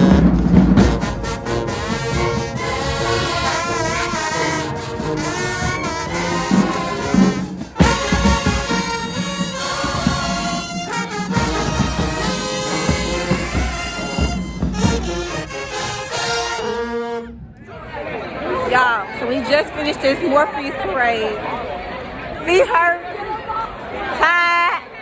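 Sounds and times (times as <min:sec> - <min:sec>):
brass playing tune: 0:00.0 - 0:17.6
drums: 0:00.0 - 0:17.7
marching band playing: 0:00.0 - 0:20.4.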